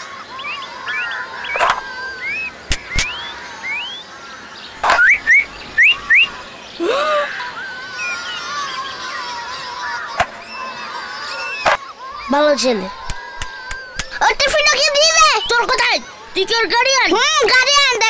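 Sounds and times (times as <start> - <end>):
birds chirping: 0.0 - 18.0
sharp clicks: 1.5 - 1.9, 2.7 - 3.2.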